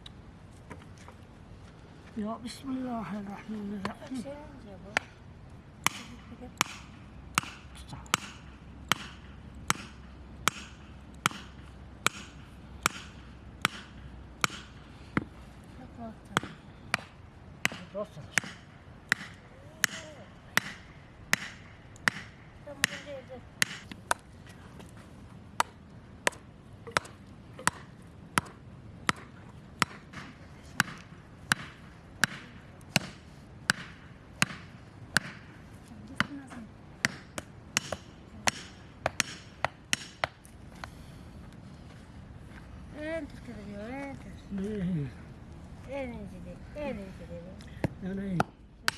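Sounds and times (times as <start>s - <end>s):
sharp chopping strikes: 5.8s - 15.3s, 16.3s - 24.3s, 25.6s - 35.5s, 37.0s - 40.4s.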